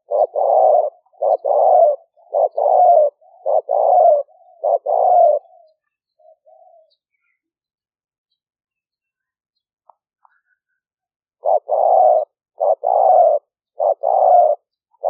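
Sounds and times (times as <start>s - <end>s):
dove cooing: 0.0s - 7.4s, 11.4s - 15.0s.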